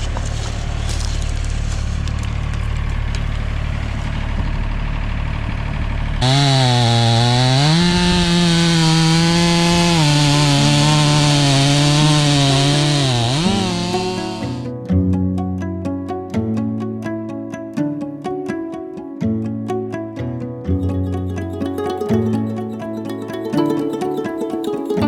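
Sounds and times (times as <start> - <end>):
band sawmill whining: 0.0 - 14.7.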